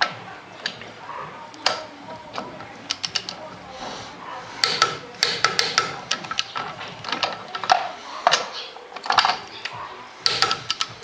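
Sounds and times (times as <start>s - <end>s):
torque wrench clicking: 4.6s - 6.6s.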